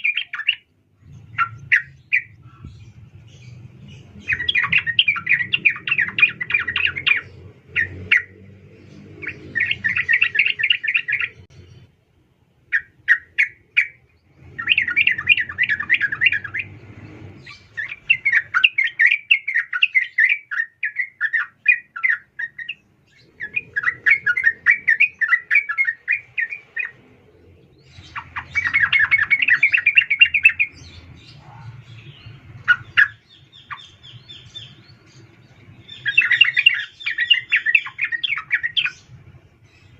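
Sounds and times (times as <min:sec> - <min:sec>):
bulbul chattering call: 0:27.8 - 0:35.2, 0:35.8 - 0:39.1.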